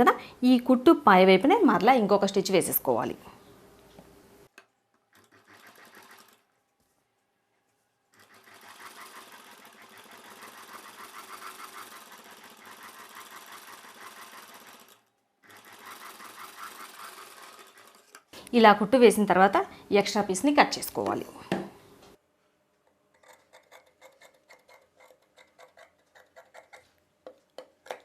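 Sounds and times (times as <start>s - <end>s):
sewing machine stitching: 5.1s - 6.4s, 8.1s - 18.2s.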